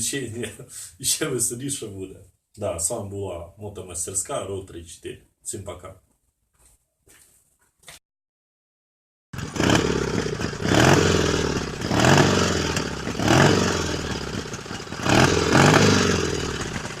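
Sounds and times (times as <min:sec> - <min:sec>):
motorcycle engine revving: 0:09.4 - 0:17.0.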